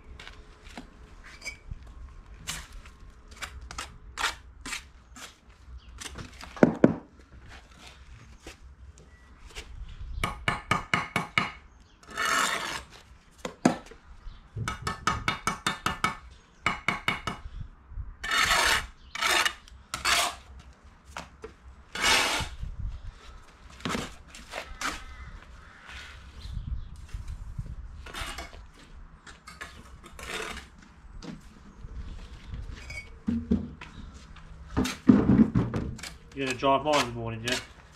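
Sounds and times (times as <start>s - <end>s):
trowel scraping mortar: 2.4s - 5.4s, 12.0s - 13.0s, 18.2s - 20.5s, 21.9s - 22.6s, 28.0s - 28.7s, 29.5s - 30.8s, 36.0s - 37.9s.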